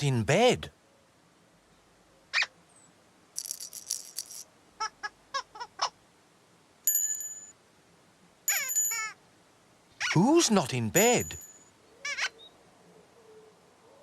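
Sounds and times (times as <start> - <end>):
bell-like chime: 6.9 - 7.6, 8.5 - 9.1, 11.0 - 11.7
cartoon squeak: 8.5 - 9.2, 10.0 - 10.2
squeaky chirps: 8.5 - 9.2.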